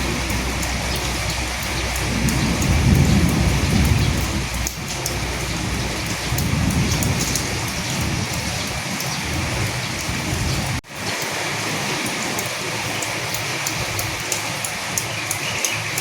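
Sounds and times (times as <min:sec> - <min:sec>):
low rumble: 0:00.0 - 0:10.8
heavy rain falling: 0:00.0 - 0:16.0.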